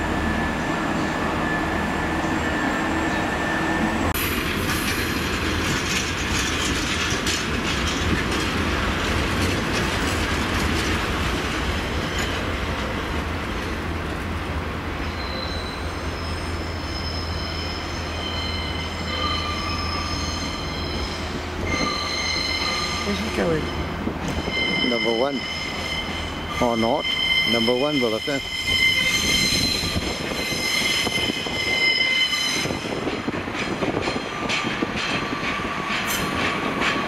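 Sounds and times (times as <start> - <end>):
diesel train engine drone: 0.0 - 37.0
train wheels squealing: 0.2 - 4.0, 12.0 - 12.5, 15.0 - 34.6.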